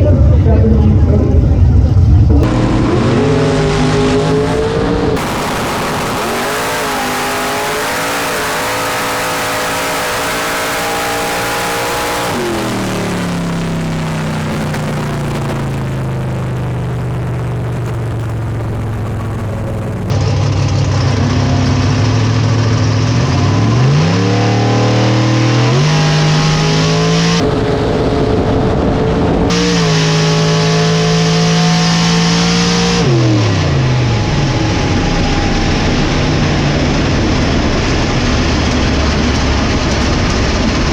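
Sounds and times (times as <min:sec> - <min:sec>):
drag car engine at full throttle: 0:01.6 - 0:40.9
low engine revving: 0:02.2 - 0:20.2.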